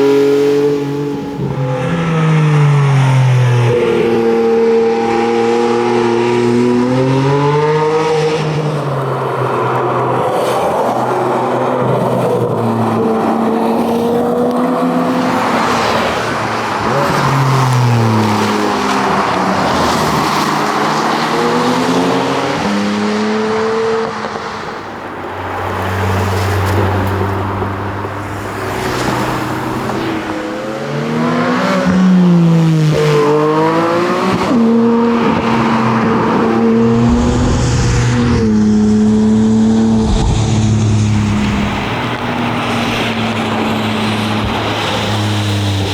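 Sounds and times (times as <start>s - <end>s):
sports car engine accelerating: 25.8s - 45.9s.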